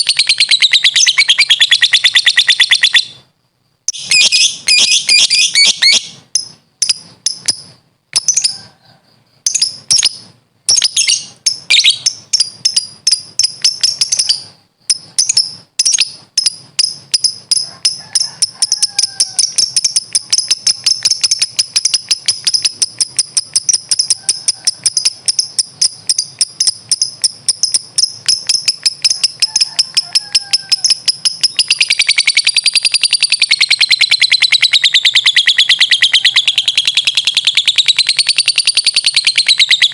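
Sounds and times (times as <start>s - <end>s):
bird shrill rattling chatter: 16.8s - 39.9s.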